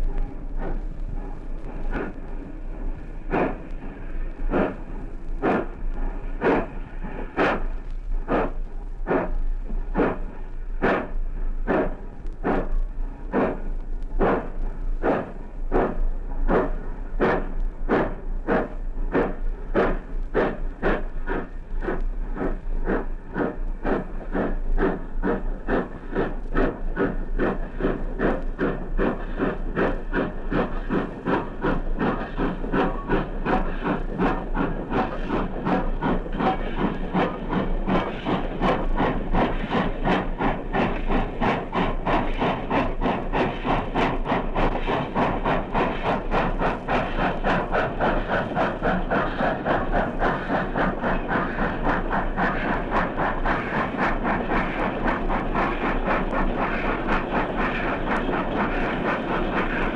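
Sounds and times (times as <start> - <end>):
steam hissing: 0.0 - 59.9
steam locomotive exhaust beats: 0.0 - 59.9.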